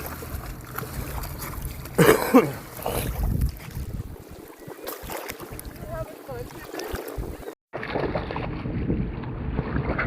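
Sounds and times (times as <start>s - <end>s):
wind on microphone: 2.8s - 10.0s.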